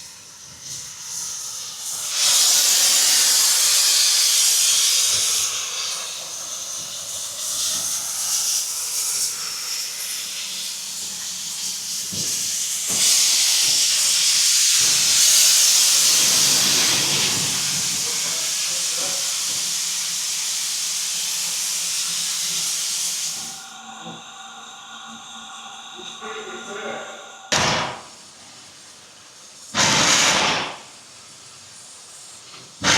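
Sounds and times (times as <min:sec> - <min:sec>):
steam locomotive hissing: 0:00.0 - 0:32.9.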